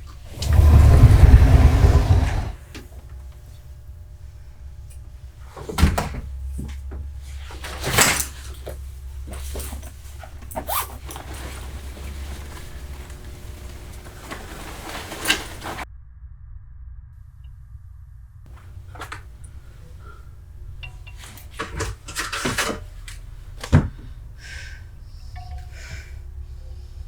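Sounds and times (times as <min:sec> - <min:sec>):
low steady hum: 0:00.0 - 0:27.0
knocks and thuds: 0:00.3 - 0:02.6.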